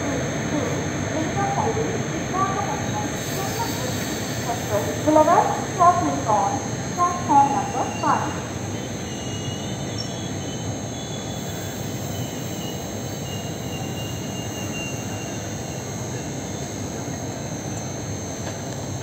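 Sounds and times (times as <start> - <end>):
train rumbling and rattling: 0.0 - 19.0
wheel squeal: 9.0 - 15.5.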